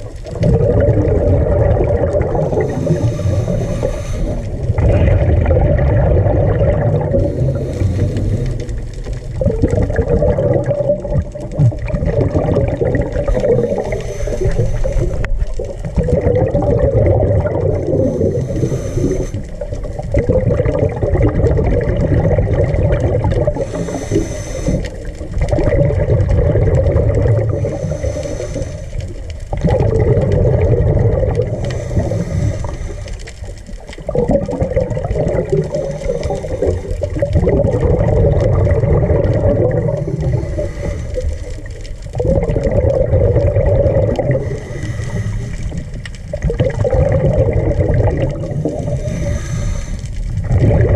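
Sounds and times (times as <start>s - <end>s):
bubbling rumbling water: 0.0s - 50.9s
rush of exhaled bubbles: 0.0s - 50.9s
diver hissing breath: 2.4s - 4.7s, 7.1s - 8.9s, 13.1s - 15.5s, 17.6s - 19.7s, 23.5s - 25.3s, 27.4s - 29.3s, 31.4s - 33.5s, 35.6s - 37.2s, 39.9s - 42.0s, 44.4s - 46.0s, 48.5s - 50.3s.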